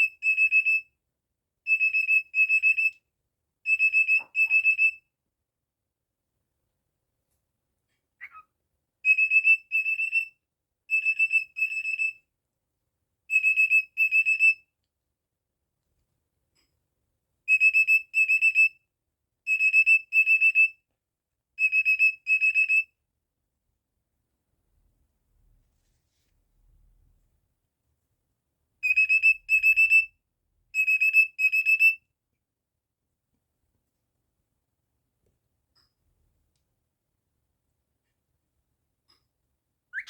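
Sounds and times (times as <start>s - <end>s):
cockatiel whistling beeps: 0.0s - 0.8s, 1.7s - 3.0s, 3.7s - 5.0s, 8.2s - 8.4s, 9.1s - 10.3s, 10.9s - 12.2s, 13.3s - 14.6s, 17.5s - 18.7s, 19.5s - 20.7s, 21.6s - 22.9s, 28.8s - 30.1s, 30.8s - 32.0s
cockatiel falling chirp: 8.2s - 8.4s.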